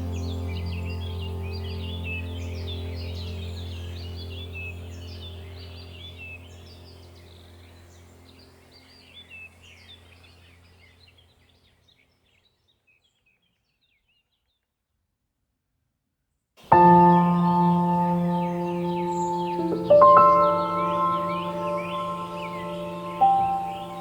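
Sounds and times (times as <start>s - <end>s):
low steady drone: 0.0s - 8.9s, 16.7s - 24.0s
small birds chirping: 0.0s - 14.7s, 16.6s - 24.0s.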